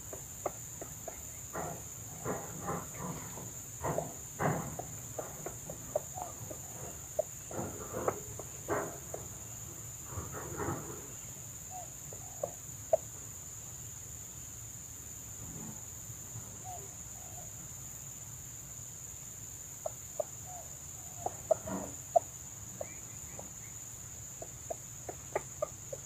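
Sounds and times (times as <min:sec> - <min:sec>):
hens clucking: 0:00.0 - 0:13.5, 0:19.8 - 0:26.0
rustles: 0:00.0 - 0:18.3
insects droning: 0:00.0 - 0:26.0.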